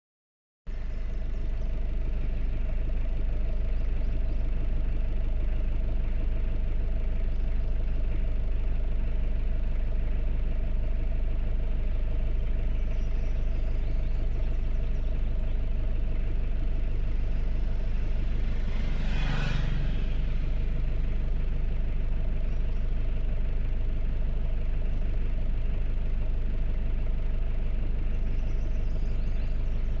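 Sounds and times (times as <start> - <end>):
truck engine droning: 0.7 - 30.0.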